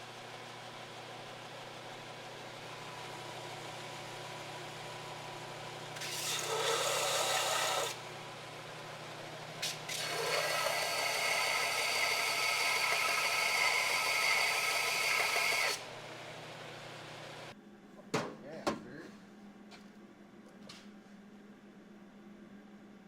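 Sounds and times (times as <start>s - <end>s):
power tool working metal: 5.9s - 8.0s, 9.6s - 16.4s.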